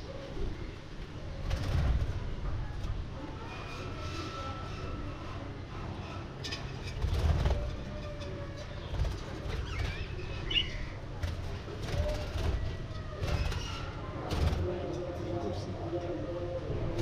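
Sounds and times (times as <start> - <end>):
wings fluttering: 1.3 - 2.9, 6.6 - 14.8.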